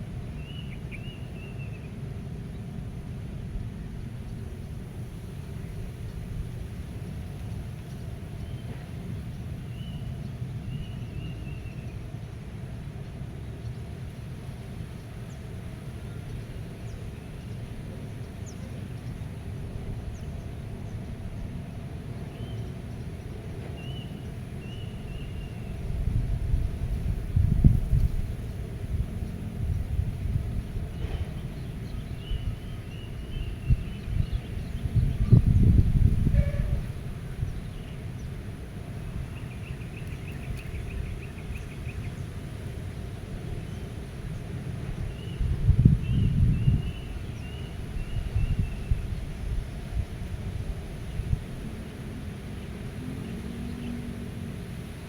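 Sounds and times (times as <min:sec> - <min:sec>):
wind rumble on microphone: 0:14.8 - 0:55.0.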